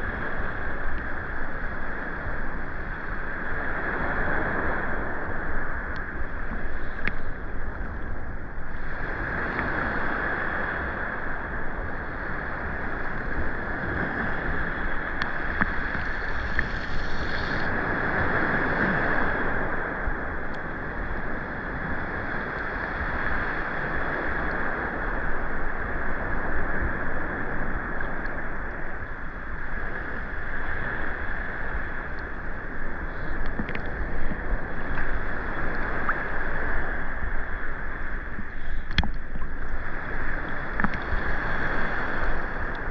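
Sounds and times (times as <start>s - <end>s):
rain falling on the sea: 0.0s - 42.9s
waves at the shore: 0.0s - 42.9s
faint ticks: 5.9s - 7.3s, 15.2s - 17.4s, 33.1s - 36.2s, 38.3s - 39.8s.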